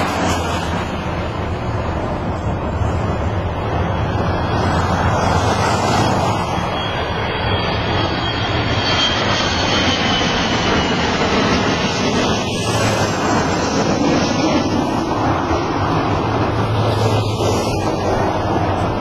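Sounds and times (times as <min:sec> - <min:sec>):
small airplane engine passing: 0:00.0 - 0:19.0
wind and road noise: 0:00.0 - 0:19.0
faint high whine: 0:02.4 - 0:11.3.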